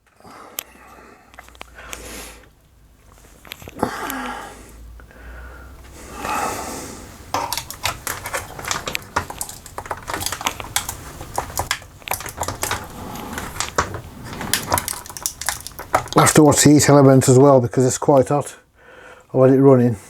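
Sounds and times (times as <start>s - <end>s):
plastic pouch crackling and clicking: 7.4s - 16.4s.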